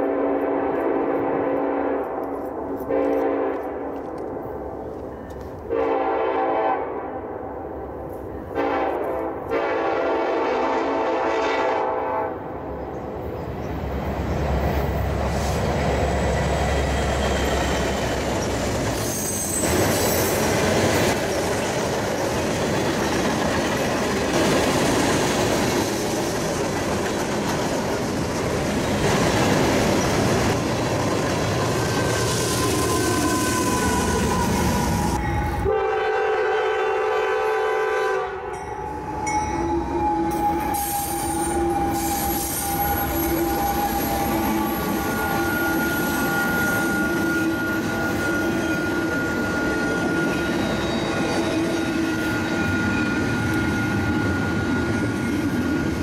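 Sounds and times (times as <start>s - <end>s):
locomotive air horn blasts: 0.0s - 4.0s, 5.7s - 7.3s, 8.5s - 12.5s, 35.0s - 45.7s
diesel locomotive engine: 0.0s - 56.0s.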